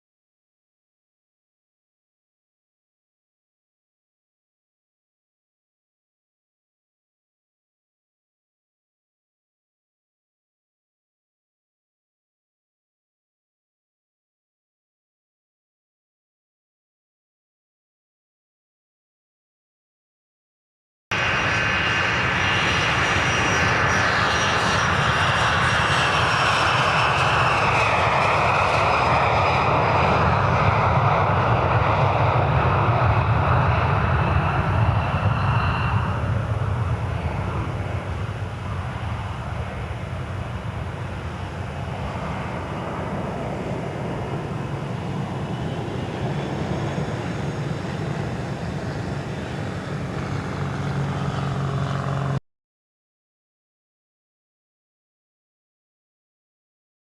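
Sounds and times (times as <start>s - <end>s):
jet engines roaring: 21.1s - 52.4s.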